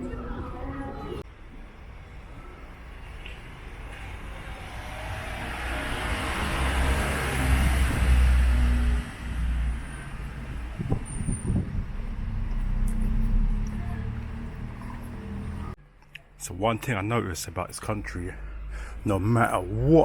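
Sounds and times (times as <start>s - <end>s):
heavy vehicle engine passing: 4.4s - 15.8s.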